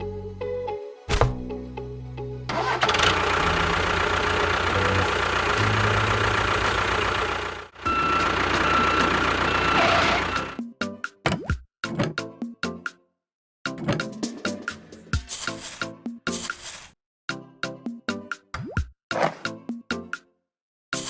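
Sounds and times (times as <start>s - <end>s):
engine running roughly: 2.5s - 10.6s.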